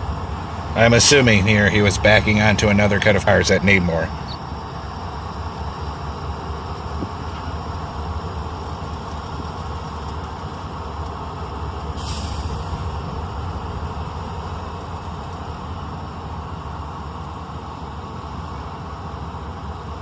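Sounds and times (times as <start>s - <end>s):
diesel locomotives rumbling: 0.0s - 20.0s
short hiss: 12.0s - 12.9s.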